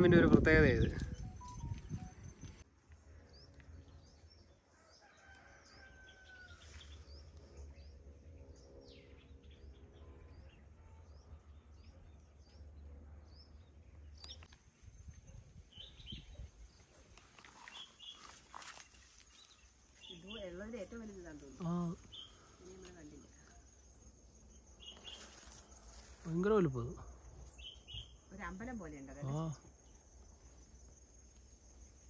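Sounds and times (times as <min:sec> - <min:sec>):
faint birdsong chirps: 0:00.6 - 0:32.0.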